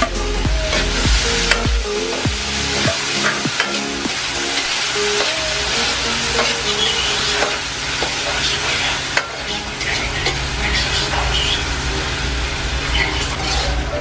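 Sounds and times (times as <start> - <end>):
ham and garlic sizzling: 0.0 - 14.0
metal spatula scraping wok: 12.9 - 14.0.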